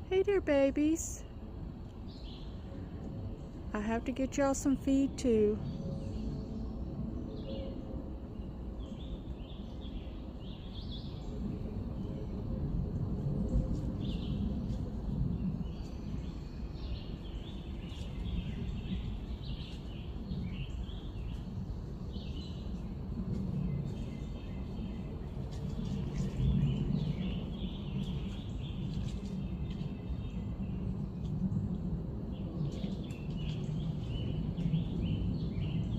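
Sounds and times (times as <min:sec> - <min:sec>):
low outdoor rumble: 0:00.0 - 0:35.9
small birds chirping: 0:14.0 - 0:31.4, 0:32.3 - 0:35.9.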